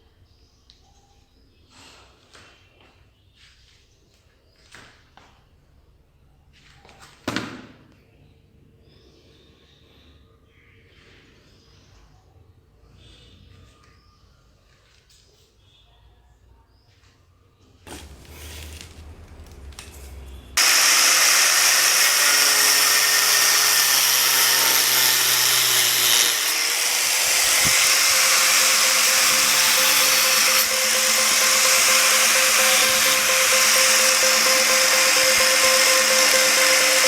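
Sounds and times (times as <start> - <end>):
electric power tool running: 17.9 - 37.0.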